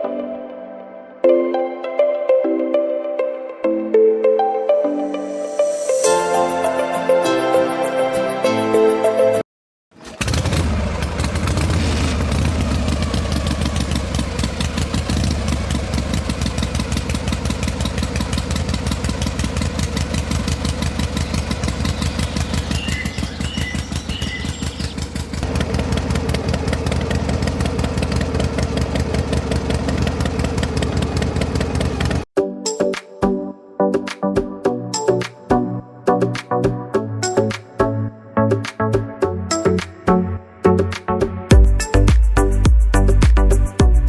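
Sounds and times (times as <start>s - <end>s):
engine chugging: 10.0s - 32.3s.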